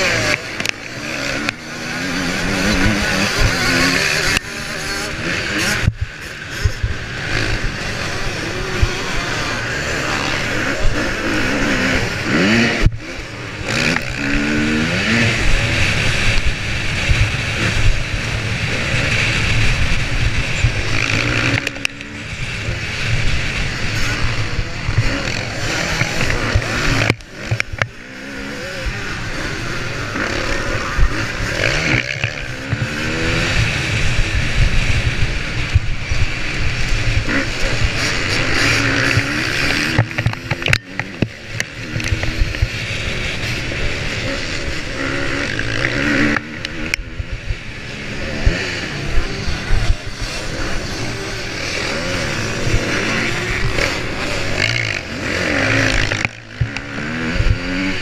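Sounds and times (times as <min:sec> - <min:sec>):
motorcycle engine revving: 0:00.0 - 0:58.0
wind noise on microphone: 0:28.7 - 0:58.0.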